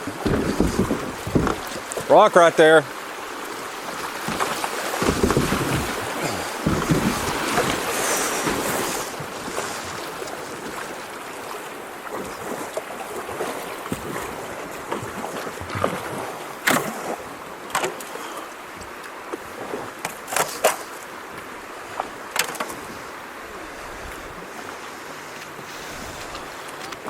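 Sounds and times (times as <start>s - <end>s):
sharp knocks: 0.0s - 1.7s, 4.3s - 8.7s
paddle splashes: 0.0s - 27.0s
running water: 0.0s - 27.0s.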